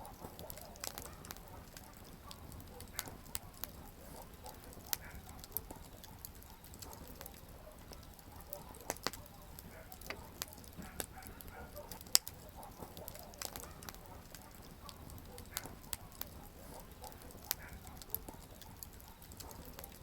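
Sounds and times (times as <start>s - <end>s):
campfire popping and snapping: 0.0s - 20.0s
hiss of flames: 0.2s - 7.4s, 12.0s - 17.6s.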